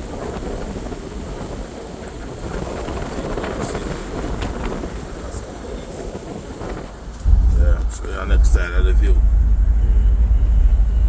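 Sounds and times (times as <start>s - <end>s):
wind buffeting microphone: 0.0s - 11.0s
vehicle rumble: 2.8s - 11.0s.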